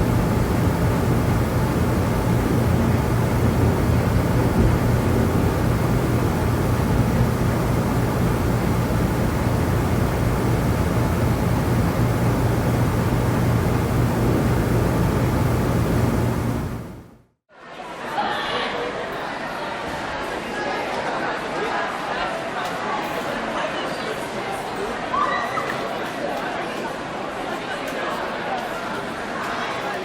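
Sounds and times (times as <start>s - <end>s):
large engine droning rumble: 0.0s - 17.2s.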